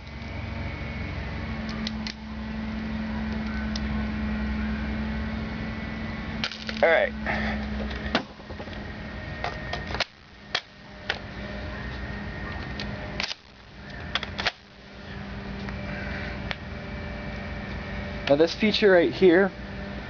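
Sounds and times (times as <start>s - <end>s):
airsoft gun mechanism clicks: 12.6s - 14.6s.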